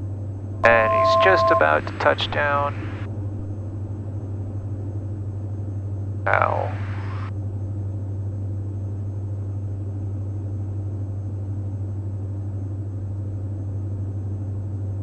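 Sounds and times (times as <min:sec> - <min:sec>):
aircraft engine drone: 0:00.6 - 0:03.7, 0:06.3 - 0:07.3.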